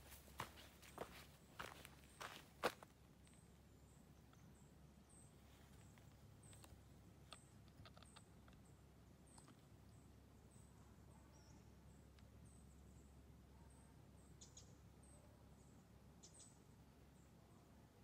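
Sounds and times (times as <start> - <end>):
bird high-pitched chirping: 14.4 - 14.8, 16.2 - 16.6.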